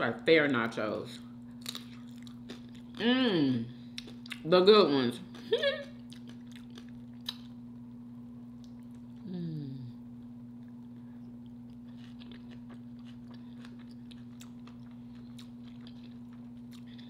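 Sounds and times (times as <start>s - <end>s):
person chewing food: 1.6s - 3.0s, 3.9s - 4.4s, 5.3s - 7.6s, 10.5s - 17.0s
person humming mm: 9.2s - 10.0s.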